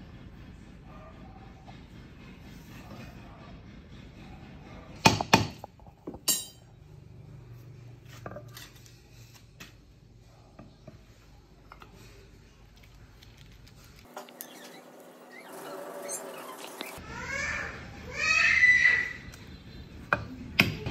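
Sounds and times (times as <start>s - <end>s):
ringing metal clank: 6.2s - 6.7s.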